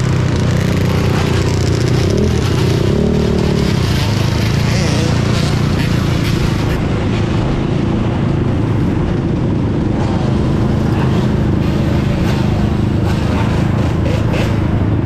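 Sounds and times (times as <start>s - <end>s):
loud wind on microphone: 0.0s - 15.0s
road rumble: 0.0s - 15.0s.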